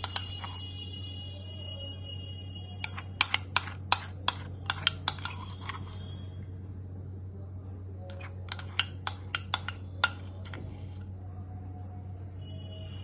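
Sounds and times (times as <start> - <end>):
metal spoon knocking bowl: 0.0 - 0.6, 2.8 - 5.8, 8.1 - 10.6.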